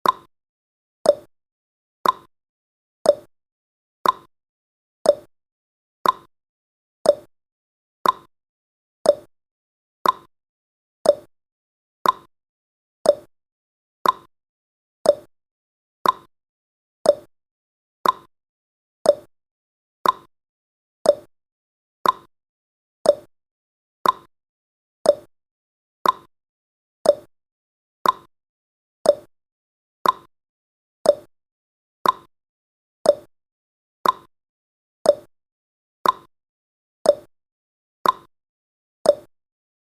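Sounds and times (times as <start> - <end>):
countdown timer ticks: 0.0 - 0.3, 1.0 - 1.3, 2.0 - 2.3, 3.0 - 3.3, 4.0 - 4.3, 5.0 - 5.3, 6.0 - 6.3, 7.0 - 7.3, 8.0 - 8.3, 9.0 - 9.3, 10.0 - 10.3, 11.0 - 11.3, 12.0 - 12.3, 13.0 - 13.3, 14.0 - 14.3, 15.0 - 15.3, 16.0 - 16.3, 17.0 - 17.3, 18.0 - 18.3, 19.0 - 19.3, 20.0 - 20.3, 21.0 - 21.3, 22.0 - 22.3, 23.0 - 23.3, 24.0 - 24.3, 25.0 - 25.3, 26.0 - 26.3, 27.0 - 27.3, 28.0 - 28.3, 29.0 - 29.3, 30.0 - 30.3, 31.0 - 31.3, 32.0 - 32.3, 33.0 - 33.3, 34.0 - 34.3, 35.0 - 35.3, 36.0 - 36.3, 37.0 - 37.3, 38.0 - 38.3, 39.1 - 39.3.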